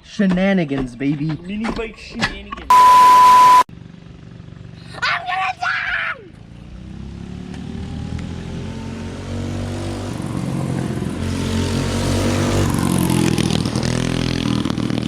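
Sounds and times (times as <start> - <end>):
mini-bike engine running hard: 3.8 - 7.0, 10.1 - 15.0.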